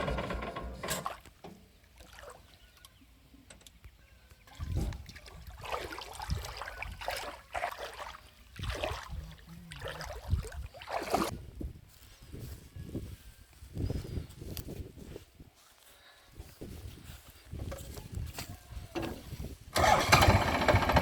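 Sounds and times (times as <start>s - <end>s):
water splashing and sloshing: 0.4s - 3.0s, 4.3s - 11.4s.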